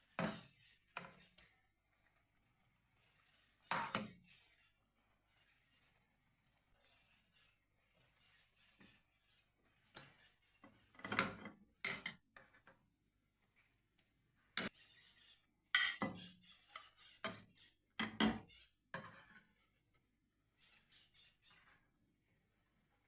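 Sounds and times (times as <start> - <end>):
metal utensil scraping a pan: 0.0 - 12.7, 14.5 - 19.8.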